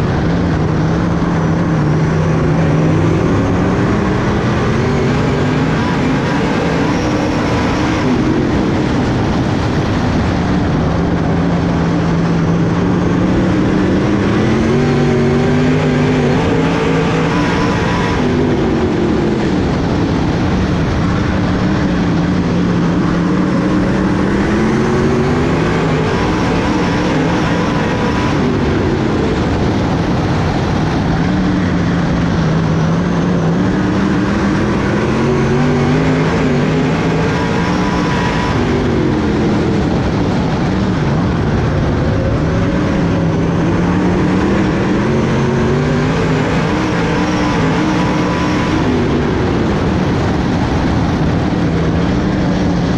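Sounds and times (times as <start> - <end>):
race car engine accelerating: 0.0 - 52.9.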